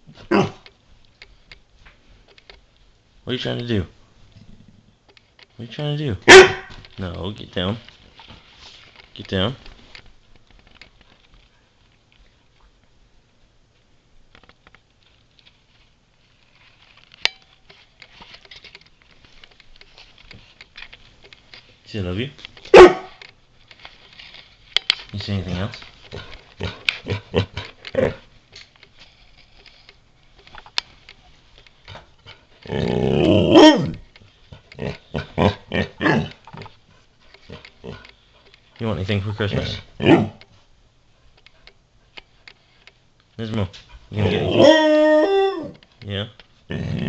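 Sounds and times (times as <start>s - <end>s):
dog moaning and grumbling: 26.1s - 28.3s, 31.9s - 36.5s, 37.5s - 38.2s, 39.4s - 40.4s, 43.4s - 45.8s, 46.7s - 47.0s.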